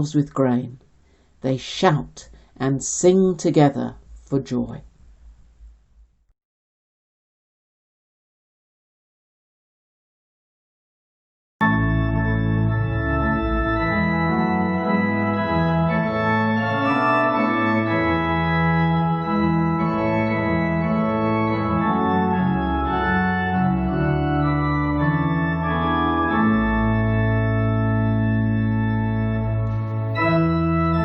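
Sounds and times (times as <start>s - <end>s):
organ playing chords: 11.6s - 31.0s.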